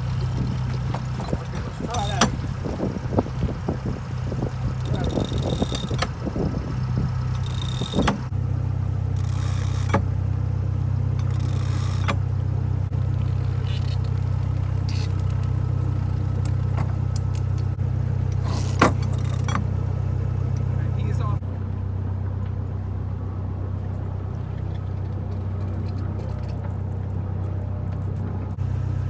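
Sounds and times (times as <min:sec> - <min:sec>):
boat engine droning: 0:00.0 - 0:26.8, 0:27.6 - 0:29.0
sharp clicks: 0:04.1 - 0:08.3.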